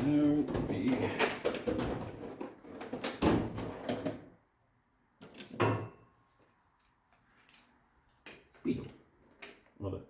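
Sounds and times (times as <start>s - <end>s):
metal tools clattering: 0.0s - 2.4s.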